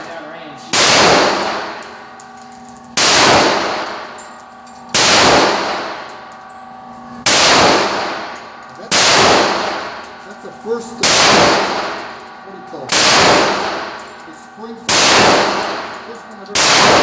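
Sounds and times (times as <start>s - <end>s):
pistol shots with ringing echo: 0.7s - 2.1s, 2.9s - 4.2s, 4.9s - 6.3s, 7.2s - 10.2s, 11.0s - 12.3s, 12.9s - 14.2s, 14.9s - 17.0s.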